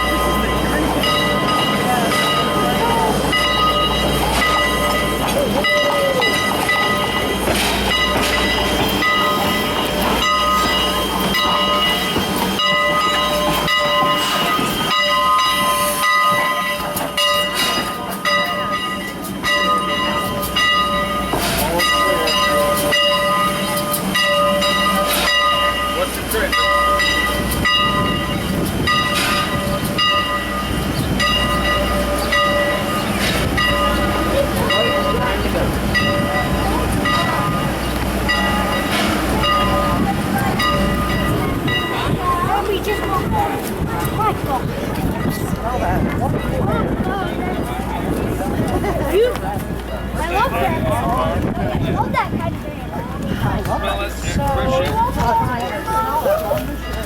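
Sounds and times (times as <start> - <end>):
locomotive bell clanging: 0.0 - 57.0
train rolling on rails: 0.0 - 57.0
train wheels squealing: 2.4 - 18.1.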